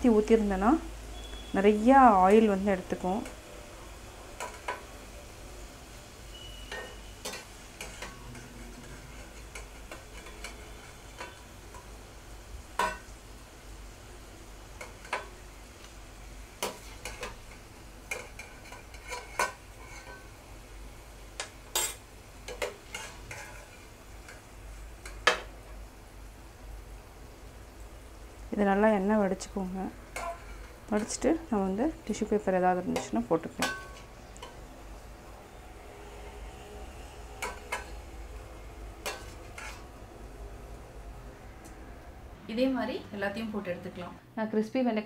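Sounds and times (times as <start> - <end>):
okra sizzling in hot oil: 0.0 - 42.4
skimmer knocking and scraping pan: 21.4 - 23.9, 30.1 - 31.2, 39.0 - 39.9.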